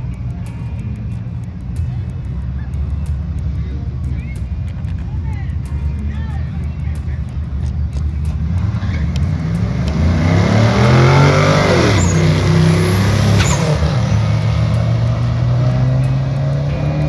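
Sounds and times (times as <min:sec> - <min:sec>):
drag car engine accelerating: 0:00.0 - 0:17.0.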